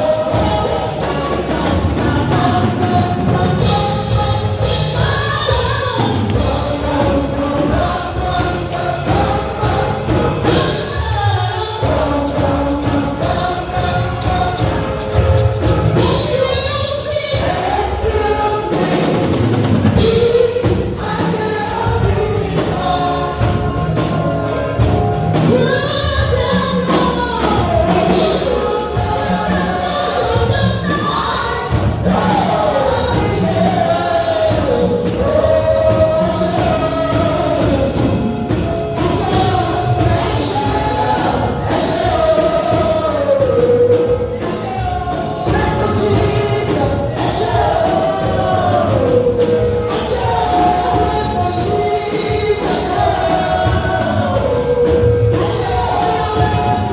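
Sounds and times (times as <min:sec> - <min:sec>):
drum kit: 0:00.0 - 0:56.9
group of voices singing: 0:00.0 - 0:56.9.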